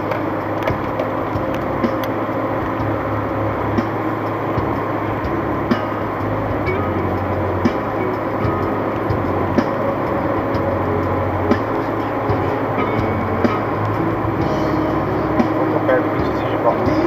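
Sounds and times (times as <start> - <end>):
road and engine noise inside car: 0.0 - 17.0.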